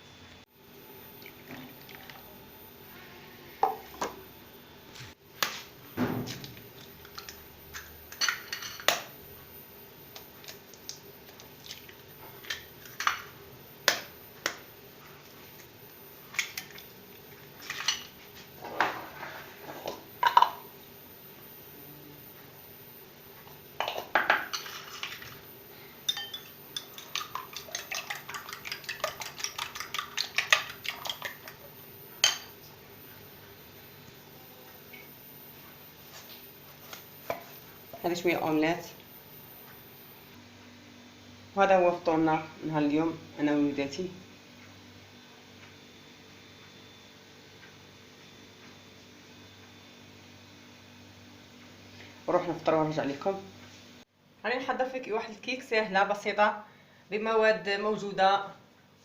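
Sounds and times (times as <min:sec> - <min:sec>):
dishes and cutlery clinking: 0:26.1 - 0:31.6, 0:32.2 - 0:32.6.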